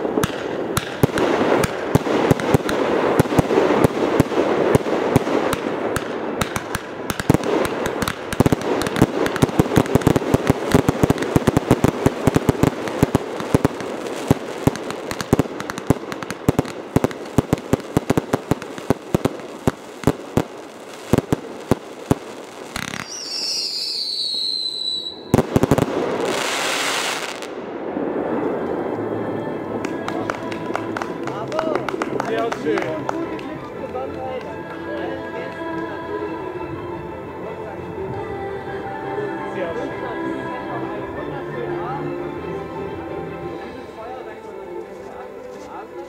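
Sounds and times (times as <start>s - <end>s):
whistling firework: 0.0s - 28.9s
fireworks crackling pops and bangs: 0.0s - 36.0s.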